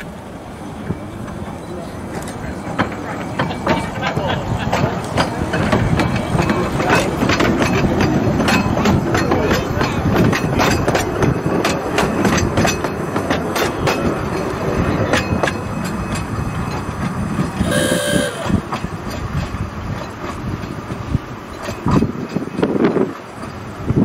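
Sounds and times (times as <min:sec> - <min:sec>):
train rumbling: 0:00.0 - 0:24.0
train horn toot: 0:17.6 - 0:18.6.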